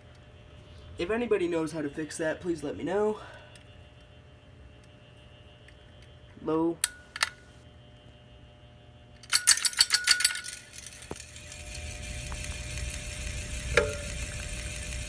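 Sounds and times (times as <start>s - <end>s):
ceiling fan motor buzzing hum: 0.0s - 15.0s
sharp metallic click: 6.8s - 7.4s, 9.2s - 11.3s
metallic rattling and clicking: 9.2s - 11.4s.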